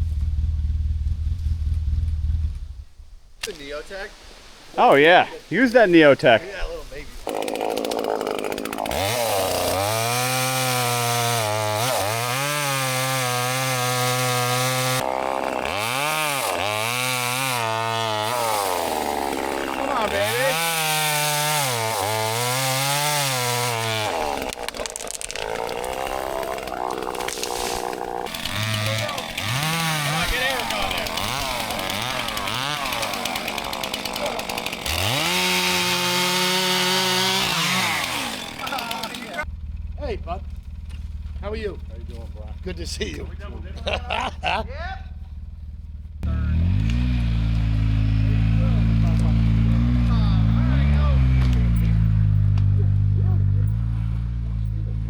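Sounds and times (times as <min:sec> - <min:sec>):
chainsaw revving: 0:07.2 - 0:39.5, 0:43.0 - 0:44.6, 0:46.2 - 0:55.0.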